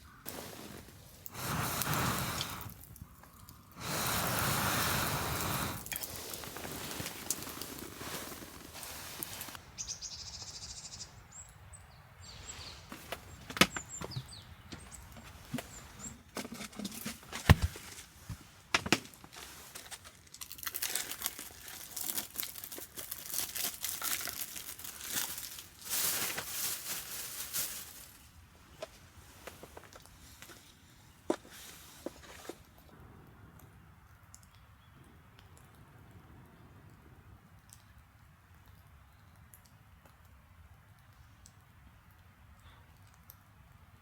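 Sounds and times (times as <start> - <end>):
rustling and crinkling: 0.0 - 9.6, 12.4 - 32.9.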